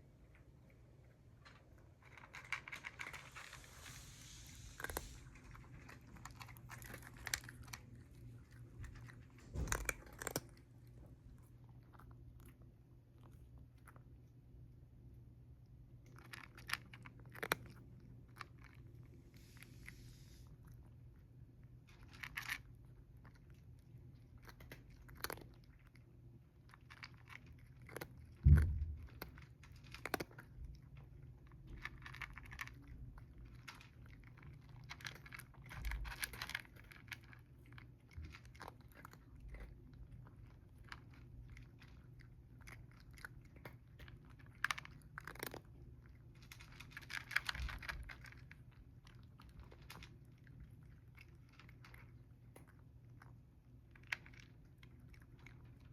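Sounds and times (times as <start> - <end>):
cats chewing and crunching food: 0.0 - 55.9
thump: 9.5 - 9.9, 28.4 - 29.2.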